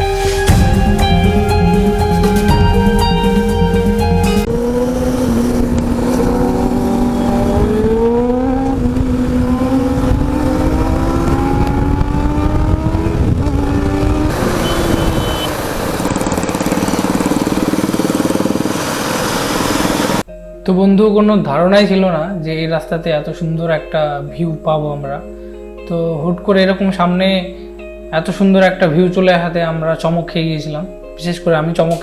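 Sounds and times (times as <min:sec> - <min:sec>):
motorcycle engine accelerating: 0:04.3 - 0:20.3
rush of wind: 0:04.5 - 0:20.2.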